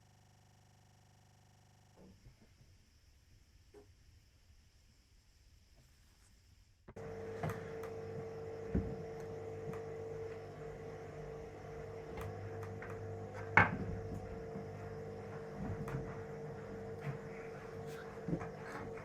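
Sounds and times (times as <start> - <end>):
steady hum: 6.9 - 19.0.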